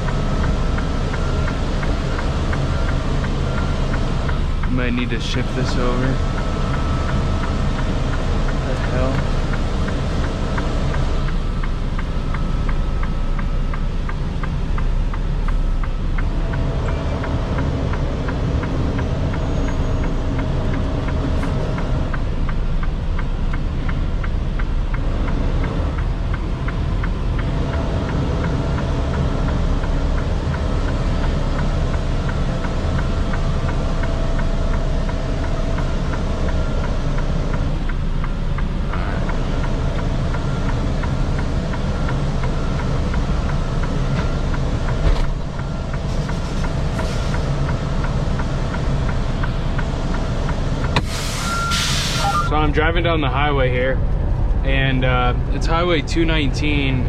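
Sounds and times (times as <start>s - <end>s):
faint regular ticking: 0.0s - 51.2s, 52.5s - 57.0s
truck engine and road rumble: 0.0s - 57.0s.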